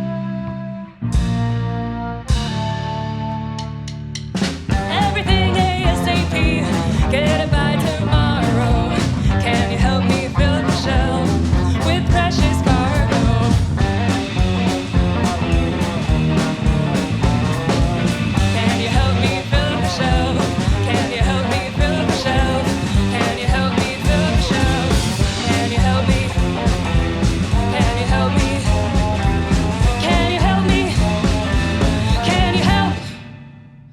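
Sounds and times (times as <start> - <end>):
bass: 0.0 - 33.9
electric guitar: 0.0 - 33.9
drum beat: 12.2 - 33.0.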